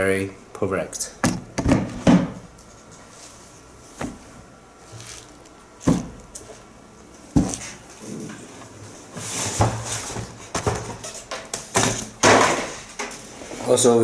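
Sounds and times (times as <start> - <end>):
packaging rustling: 4.8 - 5.6.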